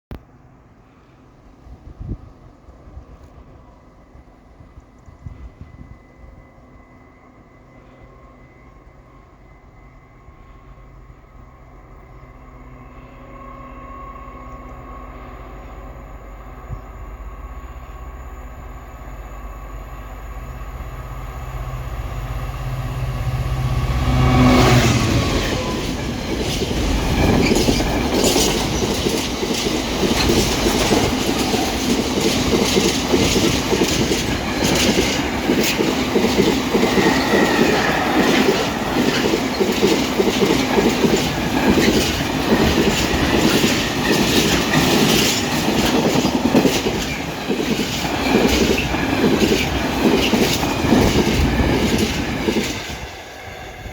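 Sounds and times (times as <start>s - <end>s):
diesel locomotive engine: 0.1s - 53.9s
wheels clacking over rail joints: 24.4s - 53.1s.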